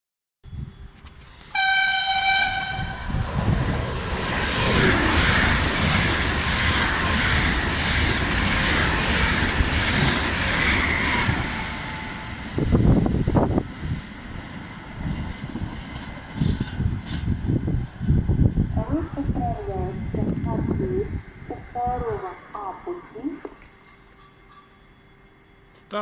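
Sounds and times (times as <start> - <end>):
train wheels rushing: 0.9 - 22.2
train horn blast: 1.5 - 3.1
clickety-clack over rail joints: 14.4 - 17.5.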